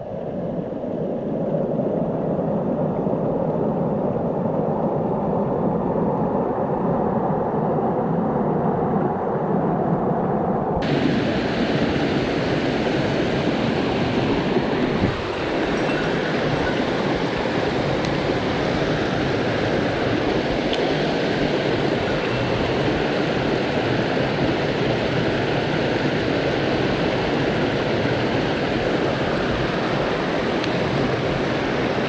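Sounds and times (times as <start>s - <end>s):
mountain stream rushing: 10.8s - 32.0s.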